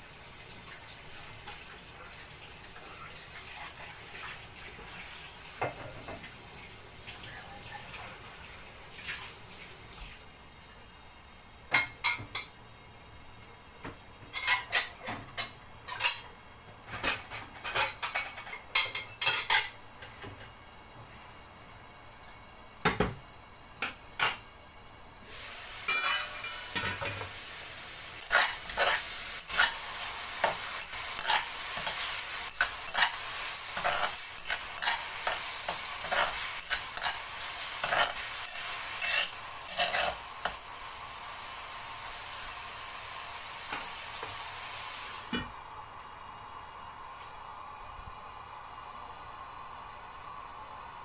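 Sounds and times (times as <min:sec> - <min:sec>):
meat sizzling in hot oil: 0:00.0 - 0:12.6, 0:25.2 - 0:45.4
metal spatula scraping a wok: 0:25.8 - 0:27.1, 0:28.2 - 0:40.6.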